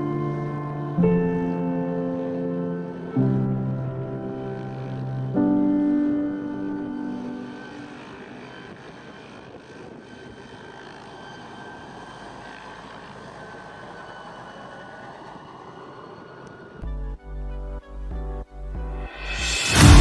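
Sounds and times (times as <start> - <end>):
aircraft engine drone: 0.0 - 17.0.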